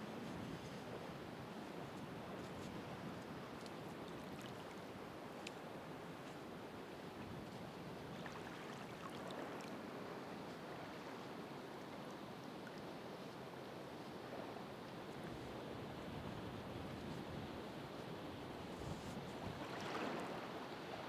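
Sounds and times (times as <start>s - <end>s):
ocean waves washing onto shore: 19.4s - 21.0s.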